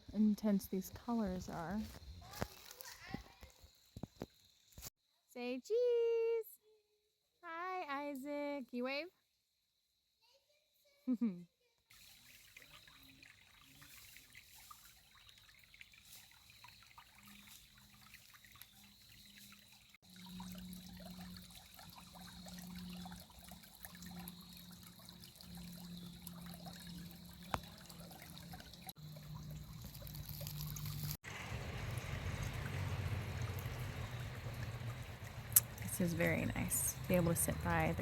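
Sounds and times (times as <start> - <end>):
creek trickling over rocks: 11.9 - 38.0.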